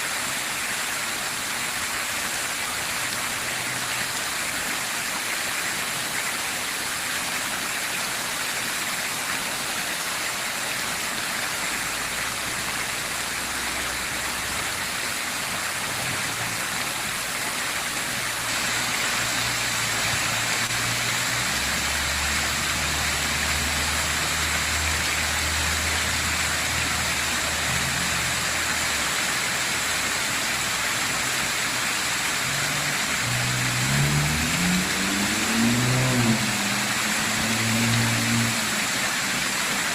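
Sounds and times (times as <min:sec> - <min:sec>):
fountain water splashing: 0:00.0 - 0:39.9
vehicle engine hum: 0:11.7 - 0:39.9.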